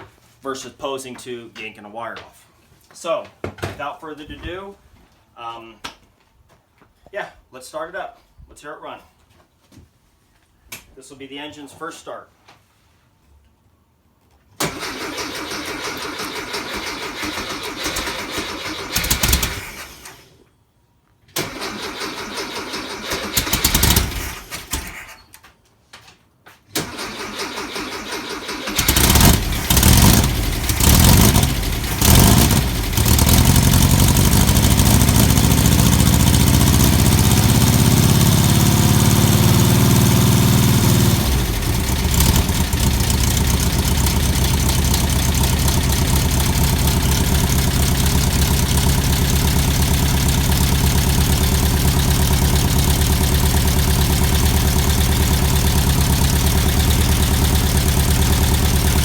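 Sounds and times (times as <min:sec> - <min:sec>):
engine cranking and idling: 0:14.6 - 0:20.3, 0:21.4 - 0:25.2, 0:26.8 - 0:59.0.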